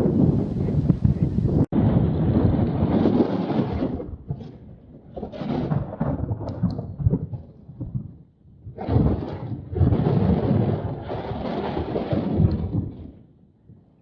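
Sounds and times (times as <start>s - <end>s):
strong wind buffeting microphone: 0.0s - 4.4s.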